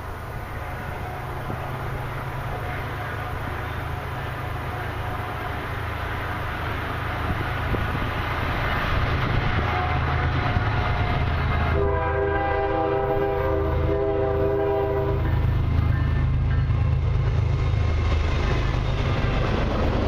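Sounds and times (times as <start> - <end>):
locomotive engine rumble: 0.0 - 20.0
locomotive air horn chord: 9.6 - 15.5.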